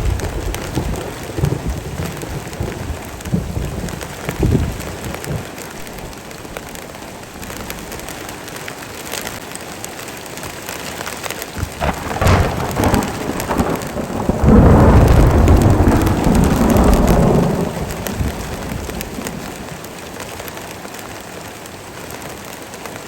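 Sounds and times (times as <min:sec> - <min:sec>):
rolling thunder: 0:00.0 - 0:08.3, 0:11.6 - 0:20.0
heavy rain: 0:00.0 - 0:23.0.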